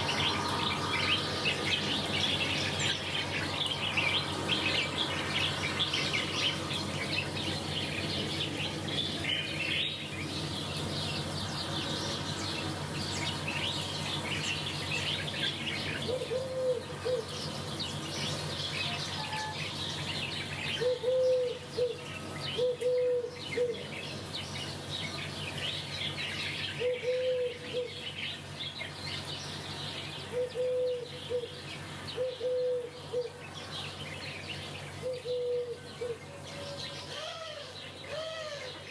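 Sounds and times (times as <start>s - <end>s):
small birds chirping: 0.0s - 38.9s
lower bird call: 13.0s - 23.9s, 26.4s - 28.2s, 30.2s - 33.4s, 34.5s - 38.9s.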